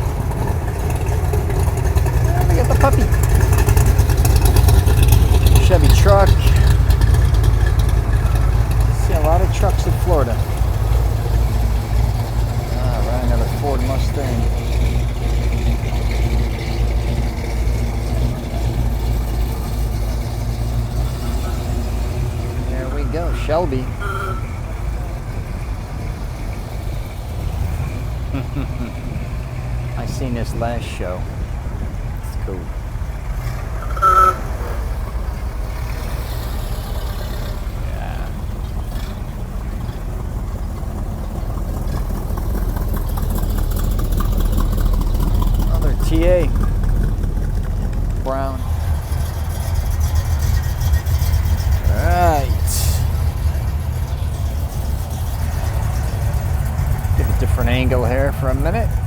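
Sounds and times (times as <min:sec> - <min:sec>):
car engine deep rumble: 0:00.0 - 0:59.0.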